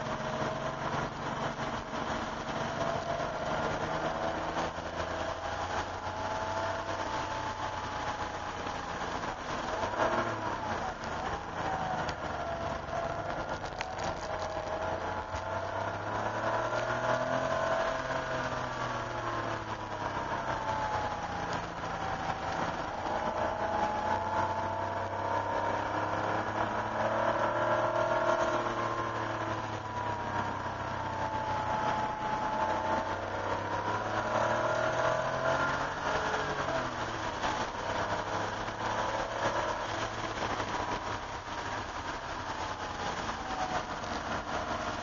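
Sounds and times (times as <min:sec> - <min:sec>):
car engine revving from inside cabin: 0:09.0 - 0:41.6.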